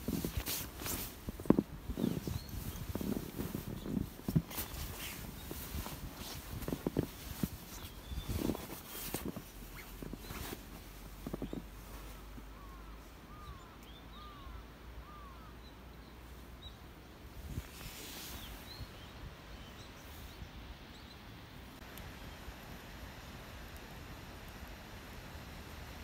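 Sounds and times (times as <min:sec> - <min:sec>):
outdoor background hiss: 0:00.0 - 0:26.0
bird calls: 0:12.5 - 0:16.8.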